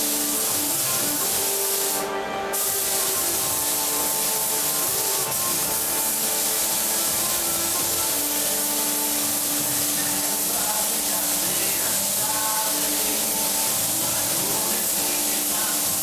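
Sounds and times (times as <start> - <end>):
faint music: 0.0 - 16.0
paint spray gun hissing: 0.0 - 16.0.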